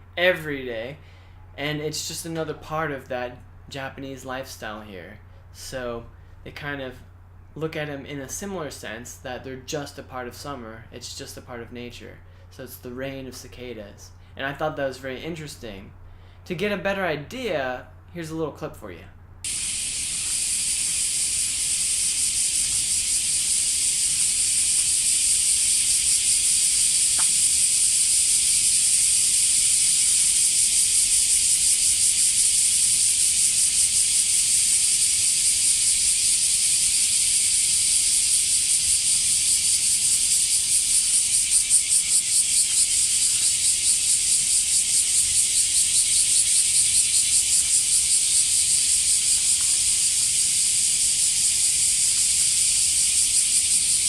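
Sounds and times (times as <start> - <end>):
cicadas buzzing: 19.4 - 54.0.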